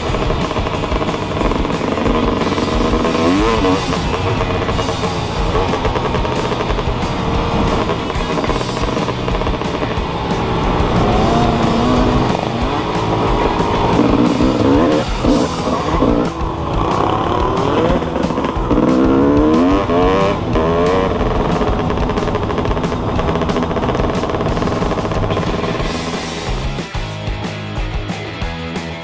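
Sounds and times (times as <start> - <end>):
small motorcycle engine revving: 0.0 - 26.7
music with steady beat: 0.0 - 29.0.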